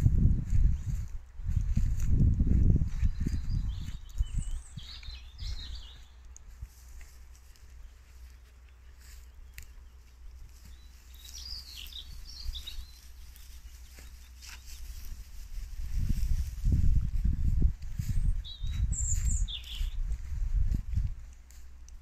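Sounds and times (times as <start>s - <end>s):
wild birds chirping: 3.1s - 15.1s, 18.0s - 20.2s.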